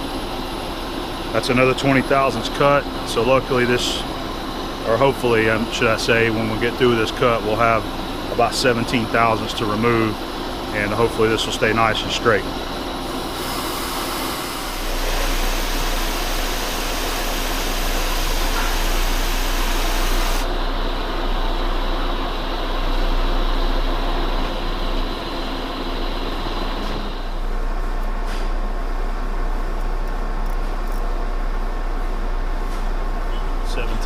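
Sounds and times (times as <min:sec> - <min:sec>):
lathe hum: 0:00.0 - 0:28.0
high cutting hiss: 0:13.3 - 0:20.4.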